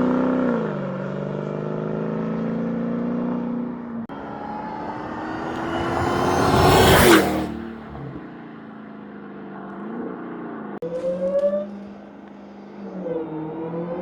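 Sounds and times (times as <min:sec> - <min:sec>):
car engine revving: 0:02.2 - 0:08.3.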